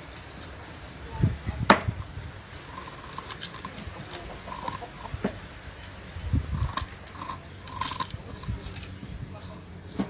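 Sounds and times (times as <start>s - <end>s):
dog chewing food: 2.5s - 5.4s, 6.3s - 9.0s.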